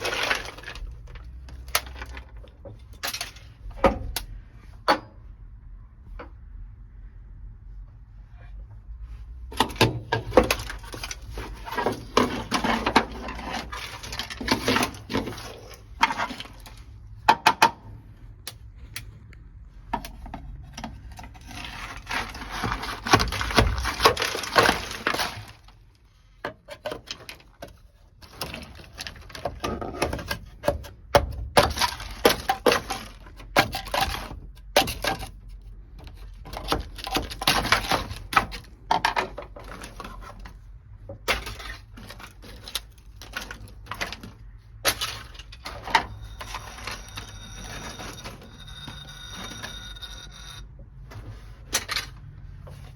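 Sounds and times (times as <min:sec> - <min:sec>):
pieces falling with knocks: 0:20.0 - 0:25.8
brittle mat cracking off metal: 0:21.4 - 0:25.8.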